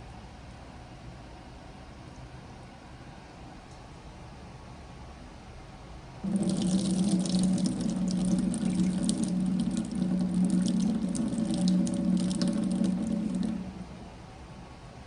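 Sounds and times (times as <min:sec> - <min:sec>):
liquid spurting into cup: 0:06.2 - 0:13.9
coffee machine pump humming: 0:06.2 - 0:15.0.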